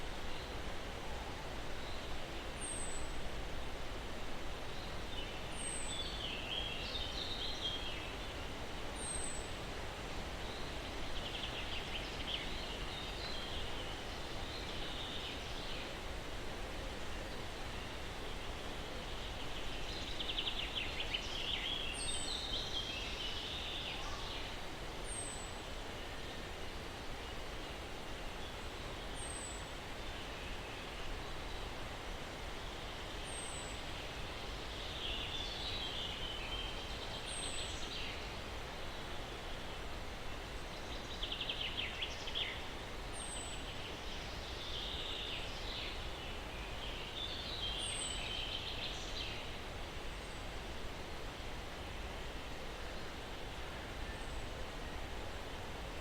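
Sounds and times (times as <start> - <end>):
breeze rustling pine trees: 0.0 - 56.0
songbirds twittering: 17.0 - 51.4.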